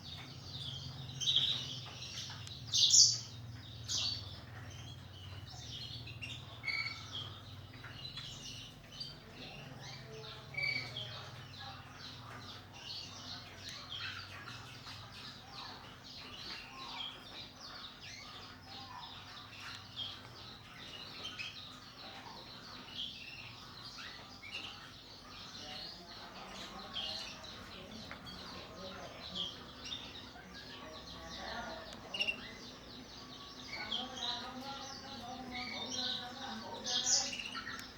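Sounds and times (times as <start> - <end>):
canaries chirping and singing: 0.0 - 37.9.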